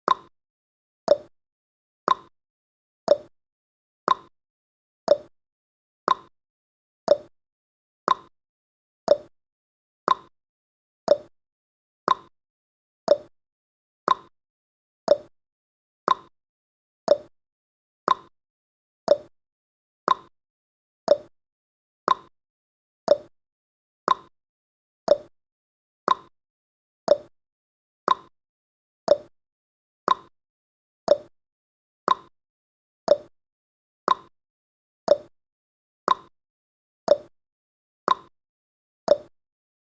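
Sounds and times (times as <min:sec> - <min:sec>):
timer ticking: 0:00.1 - 0:00.3, 0:01.1 - 0:01.3, 0:02.1 - 0:02.3, 0:03.1 - 0:03.3, 0:04.1 - 0:04.3, 0:05.1 - 0:05.3, 0:06.1 - 0:06.3, 0:07.1 - 0:07.3, 0:08.1 - 0:08.3, 0:09.1 - 0:09.3, 0:10.1 - 0:10.3, 0:11.1 - 0:11.3, 0:12.1 - 0:12.3, 0:13.1 - 0:13.3, 0:14.1 - 0:14.3, 0:15.1 - 0:15.3, 0:16.1 - 0:16.3, 0:17.1 - 0:17.3, 0:18.1 - 0:18.3, 0:19.1 - 0:19.3, 0:20.1 - 0:20.3, 0:21.1 - 0:21.3, 0:22.1 - 0:22.3, 0:23.1 - 0:23.3, 0:24.1 - 0:24.3, 0:25.1 - 0:25.3, 0:26.1 - 0:26.3, 0:27.1 - 0:27.3, 0:28.1 - 0:28.3, 0:29.1 - 0:29.3, 0:31.1 - 0:31.3, 0:33.1 - 0:33.3, 0:34.1 - 0:34.3, 0:35.1 - 0:35.3, 0:37.1 - 0:37.3, 0:39.1 - 0:39.3.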